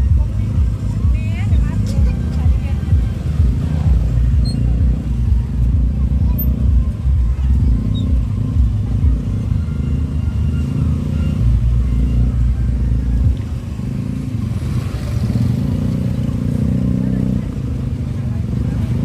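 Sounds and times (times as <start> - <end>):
heavy distorted bass music: 0.0 - 14.9.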